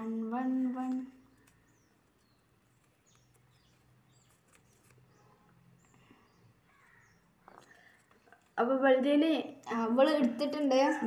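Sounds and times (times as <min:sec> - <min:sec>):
faint bird chirps: 0:00.0 - 0:08.7.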